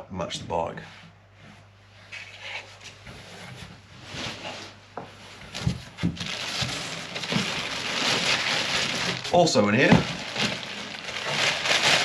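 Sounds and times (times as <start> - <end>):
packaging rustling: 5.5 - 12.0.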